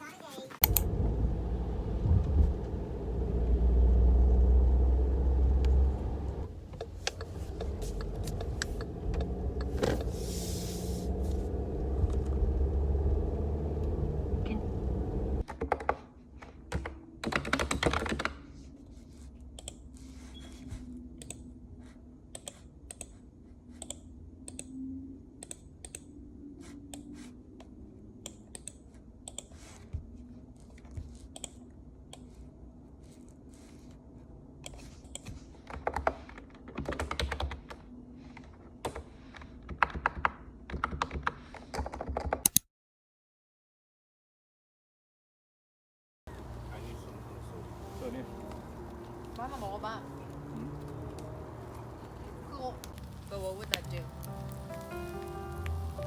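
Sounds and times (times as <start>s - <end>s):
steady low rumble: 0.6s - 15.4s.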